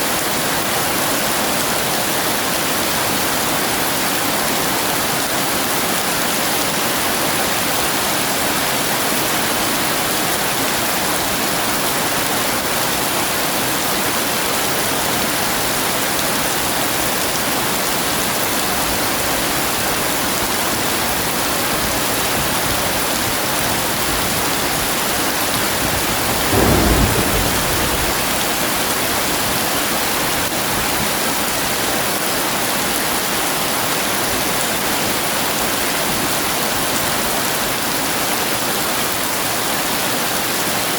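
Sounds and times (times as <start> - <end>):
heavy rain: 0.0 - 40.9
thunder clap: 23.7 - 30.2.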